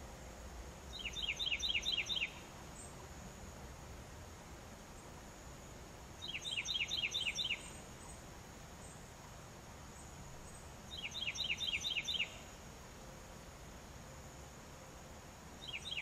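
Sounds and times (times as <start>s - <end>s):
songbird whistled song: 0.9s - 3.0s, 6.2s - 8.2s, 10.0s - 12.6s, 15.6s - 16.0s.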